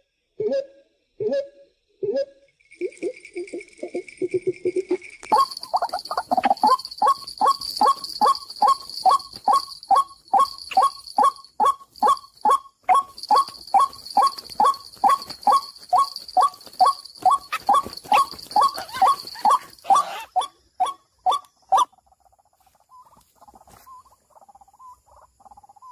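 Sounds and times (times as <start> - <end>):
waterhen repeated kook calls: 5.3 - 22.0.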